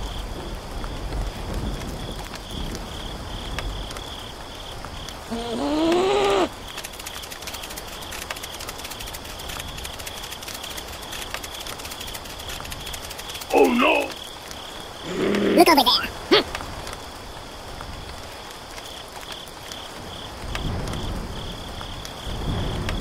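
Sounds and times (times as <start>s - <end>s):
steady rain: 0.0s - 23.0s
voice-like cry: 5.3s - 6.6s, 13.5s - 14.2s, 15.0s - 16.5s
drop-like ticks: 6.6s - 14.7s.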